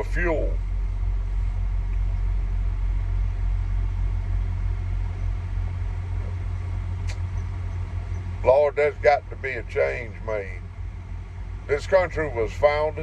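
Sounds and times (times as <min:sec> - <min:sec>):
diesel truck engine idling: 0:00.0 - 0:13.0
short sharp tick: 0:07.0 - 0:07.3.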